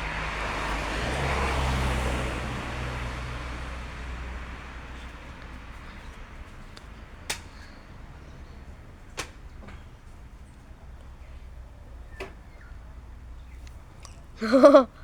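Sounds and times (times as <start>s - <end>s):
road noise from passing vehicle: 0.0s - 15.0s.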